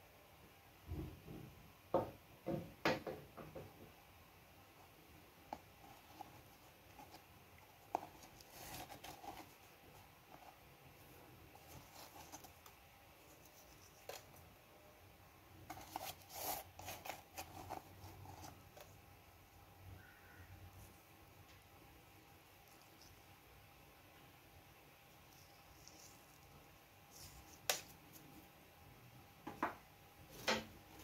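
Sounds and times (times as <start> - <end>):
scraping and rustling: 5.8 - 14.6, 15.6 - 19.0.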